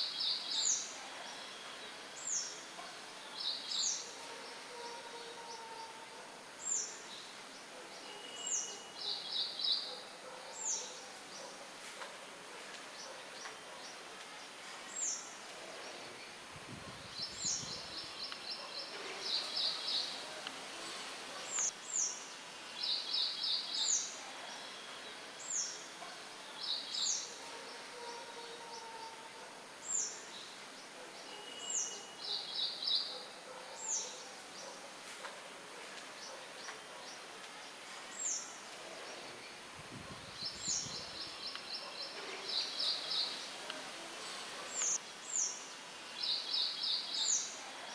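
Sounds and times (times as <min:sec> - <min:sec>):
light wind in foliage: 0:00.0 - 0:47.9
songbirds chirping and trilling: 0:00.0 - 0:47.9
low wind gusts: 0:15.6 - 0:19.2, 0:38.8 - 0:41.8.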